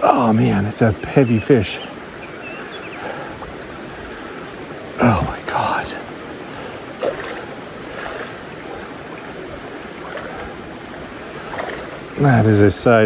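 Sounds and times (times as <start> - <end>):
stream water flowing: 0.0 - 13.0.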